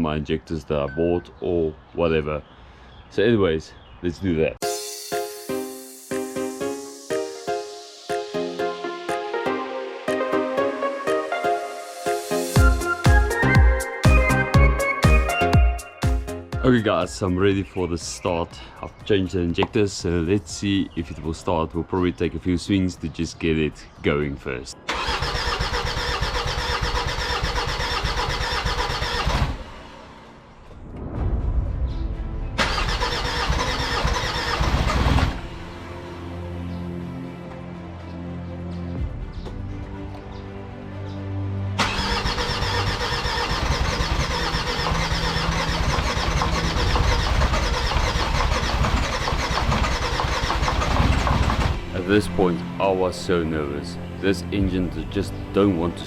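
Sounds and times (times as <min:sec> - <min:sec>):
diesel engine starter cranking: 0:24.9 - 0:30.2, 0:32.6 - 0:35.5, 0:41.8 - 0:51.9.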